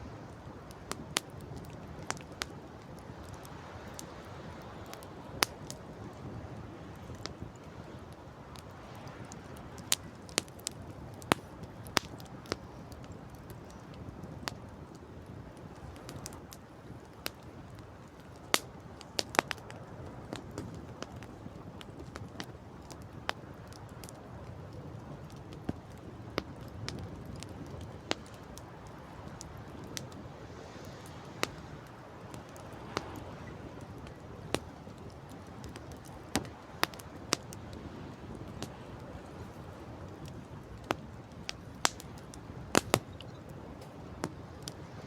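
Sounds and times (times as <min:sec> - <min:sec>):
campfire crackling: 0:00.0 - 0:45.0
sea: 0:00.0 - 0:45.0
wind: 0:00.0 - 0:45.0
sharp fire pops: 0:08.6 - 0:24.1, 0:30.8 - 0:38.8, 0:40.1 - 0:44.9.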